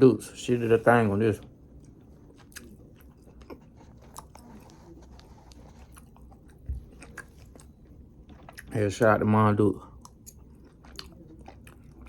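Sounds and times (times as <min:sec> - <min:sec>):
person chewing food: 0:01.4 - 0:08.8, 0:09.8 - 0:12.0.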